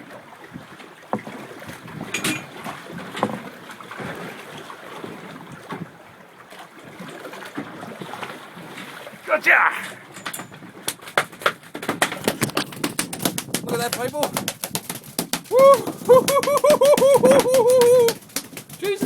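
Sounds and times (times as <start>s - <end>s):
water sloshing against boat hull: 0.0s - 19.0s
knocks and thumps on boat: 0.5s - 6.0s, 7.0s - 19.0s.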